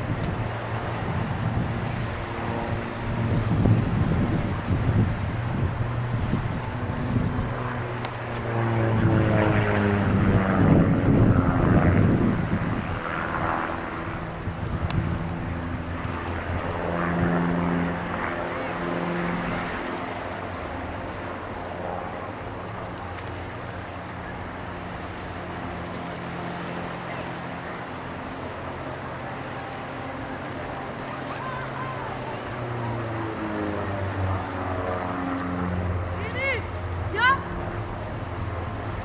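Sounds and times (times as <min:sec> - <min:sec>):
wind noise on microphone: 0:00.0 - 0:19.8
low engine drone: 0:00.0 - 0:39.0.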